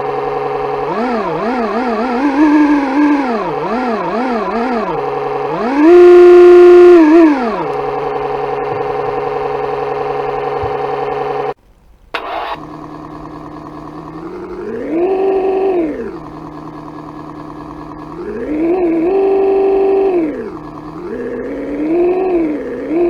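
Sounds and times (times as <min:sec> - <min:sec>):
synthesized engine sound: 0:00.0 - 0:11.6, 0:12.2 - 0:23.0
click: 0:06.9 - 0:07.9.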